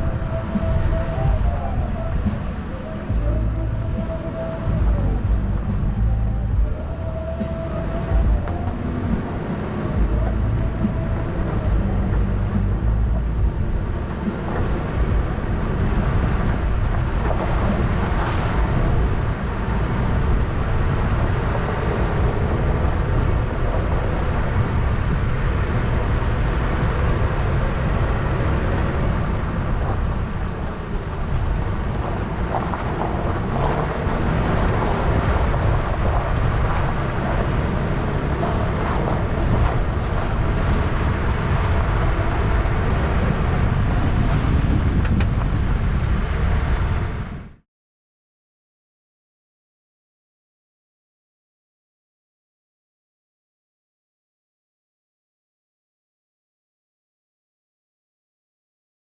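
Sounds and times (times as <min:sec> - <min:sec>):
engine and tyre noise: 0:00.0 - 0:47.6.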